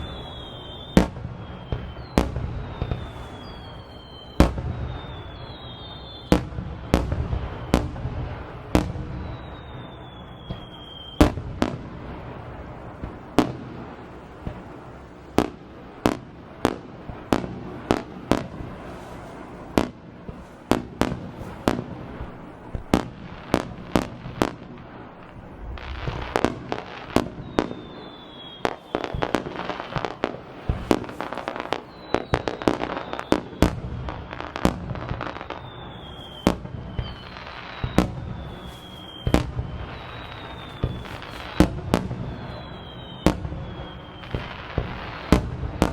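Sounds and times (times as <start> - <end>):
falling firework whistles: 0.0 - 45.9
fireworks crackling: 0.0 - 45.9
firework shells bursting: 17.1 - 45.9.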